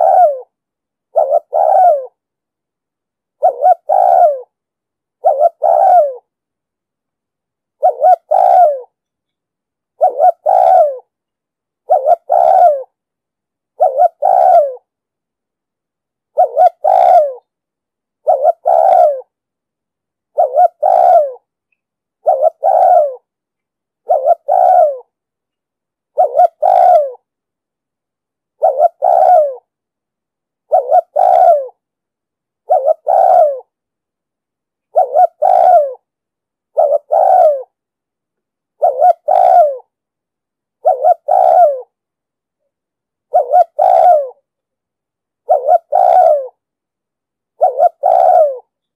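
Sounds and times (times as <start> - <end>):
dove cooing: 0.0 - 2.2, 3.4 - 4.6, 5.2 - 6.3, 7.8 - 9.0, 10.0 - 11.1, 11.8 - 13.0, 13.8 - 14.9, 16.3 - 17.5, 18.2 - 19.4, 20.3 - 21.5, 22.2 - 23.3, 24.0 - 25.1, 26.1 - 27.3, 28.6 - 29.7, 30.7 - 31.8, 32.6 - 33.8, 34.8 - 36.1, 36.7 - 37.8, 38.8 - 39.9, 40.8 - 42.0, 43.3 - 44.4, 45.4 - 46.6, 47.6 - 48.7.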